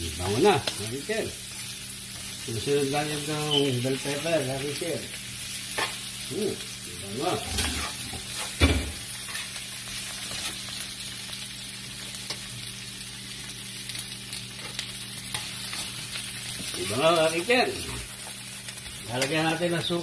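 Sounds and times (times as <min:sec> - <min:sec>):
vegetables sizzling in hot oil: 0:00.0 - 0:20.0
spatula stirring and scraping: 0:07.2 - 0:08.6.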